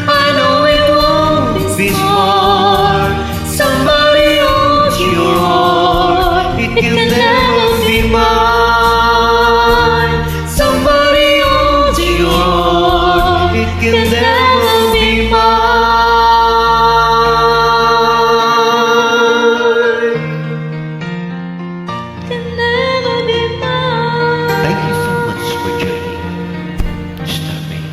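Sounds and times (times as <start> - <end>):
wordless vocal harmonies: 0.0 - 19.0
low bass notes: 26.8 - 27.3.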